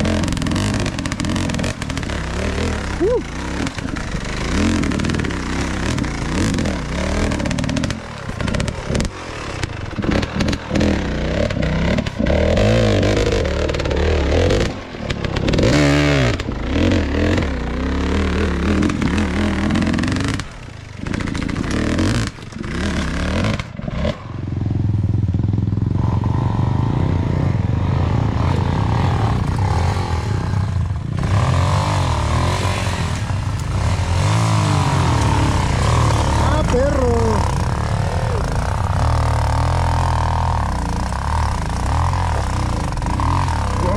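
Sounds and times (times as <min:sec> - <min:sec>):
dirt bike engine revving: 0:00.0 - 0:43.9
bike clattering over rocks: 0:33.0 - 0:36.7.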